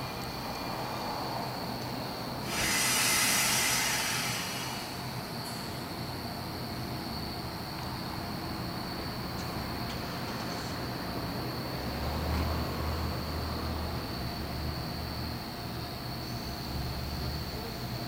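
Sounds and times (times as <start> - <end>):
faint train hum: 0.0 - 18.0
train air hiss: 1.0 - 8.9.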